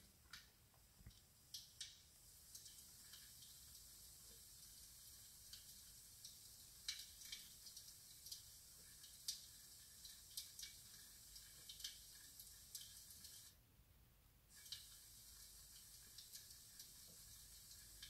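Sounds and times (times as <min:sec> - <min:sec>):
recorded wood fire crackling: 0:00.0 - 0:13.6, 0:14.5 - 0:18.0
low hiss: 0:00.0 - 0:18.0.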